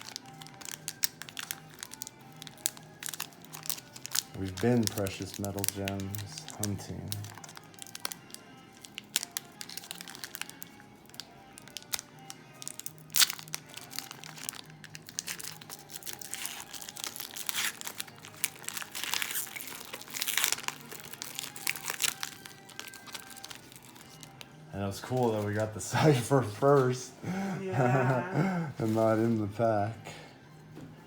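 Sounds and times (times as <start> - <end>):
card pack wrapper crinkling: 0.0 - 25.7
faint background music: 0.0 - 31.0.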